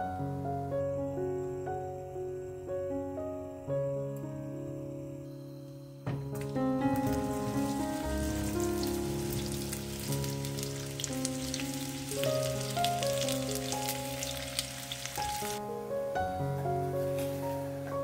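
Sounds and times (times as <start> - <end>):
soft background music: 0.0 - 18.0
zucchini sizzling in hot oil: 6.9 - 15.6.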